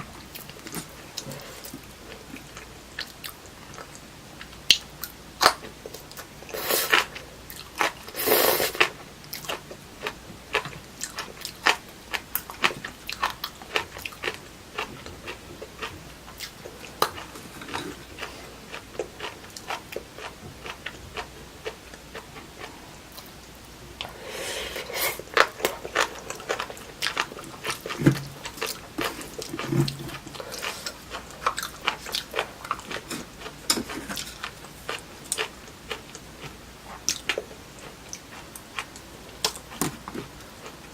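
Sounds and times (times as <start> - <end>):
chewing with wet mouth clicks: 25.3 - 40.9.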